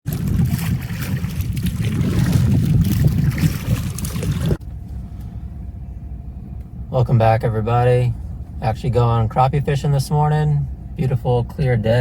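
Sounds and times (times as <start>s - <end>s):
wind buffeting microphone: 0.0s - 4.6s
water splashing: 0.1s - 4.6s
low hum: 0.1s - 12.0s.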